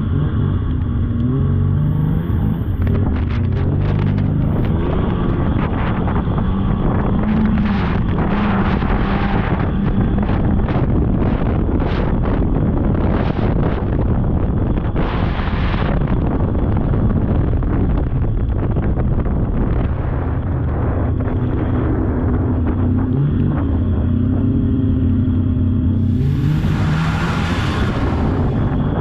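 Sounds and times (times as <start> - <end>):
snowmobile engine running: 0.0 - 29.0
rushing noise: 25.9 - 29.0.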